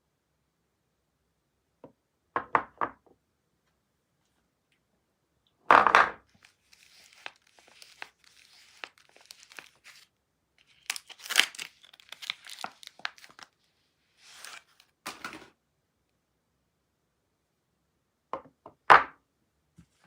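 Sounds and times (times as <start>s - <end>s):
packaging crinkling and rustling: 6.4s - 13.6s, 14.2s - 15.3s
packaging tearing: 6.4s - 13.6s, 14.2s - 14.8s.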